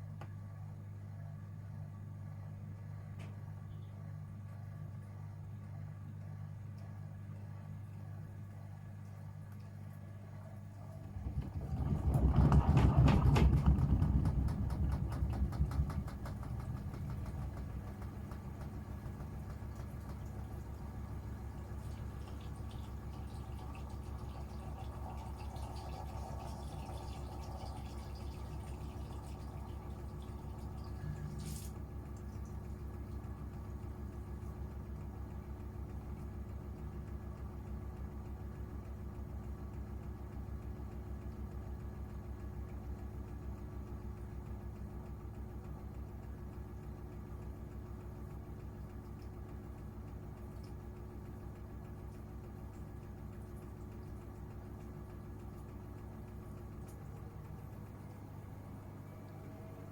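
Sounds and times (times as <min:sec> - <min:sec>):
washing machine humming: 0:00.0 - 0:59.9
washing machine drum ticking: 0:11.1 - 0:58.4.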